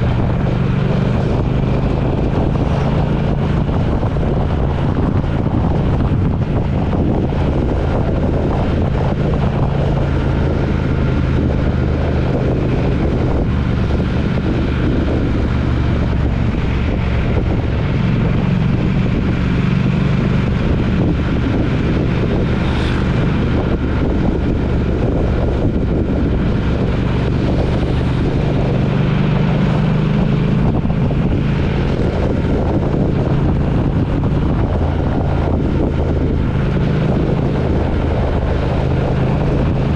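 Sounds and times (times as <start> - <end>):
road noise: 0.0 - 39.9
vehicle engine cruising: 0.0 - 39.9
wind noise on microphone: 0.0 - 39.9.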